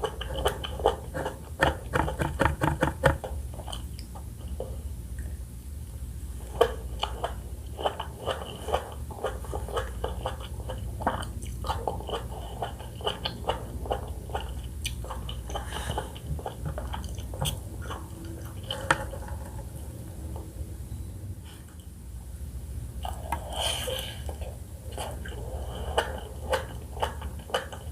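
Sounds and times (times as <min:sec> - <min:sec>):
wet chewing of fruit: 0:00.0 - 0:02.6, 0:06.4 - 0:19.8, 0:23.0 - 0:27.9.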